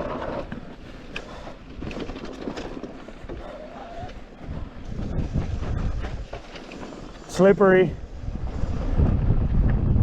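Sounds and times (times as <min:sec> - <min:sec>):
bike clicks and rattles: 0:00.0 - 0:10.0
bike tyres crunching on dirt: 0:00.0 - 0:10.0.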